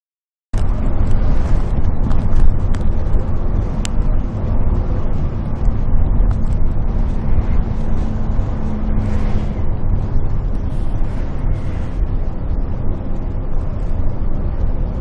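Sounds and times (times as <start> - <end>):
bus engine and road rumble: 0.6 - 15.0
faint steady hum: 0.6 - 15.0.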